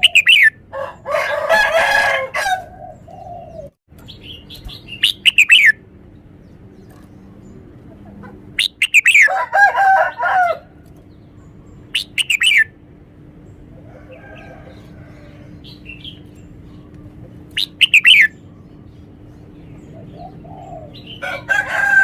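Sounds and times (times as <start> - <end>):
faint bird calls: 0.0 - 0.6, 11.4 - 12.7, 13.6 - 21.5
bulbul singing whistled notes: 4.2 - 5.8, 8.6 - 9.3, 11.9 - 12.7, 17.5 - 18.4.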